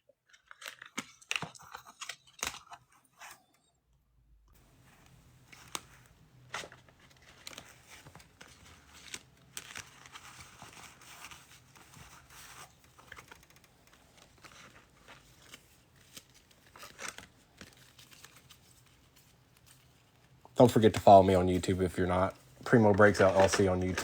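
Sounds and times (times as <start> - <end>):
wrappers crinkling and rustling: 4.6 - 24.0
cards clicking and snapping: 22.7 - 24.0.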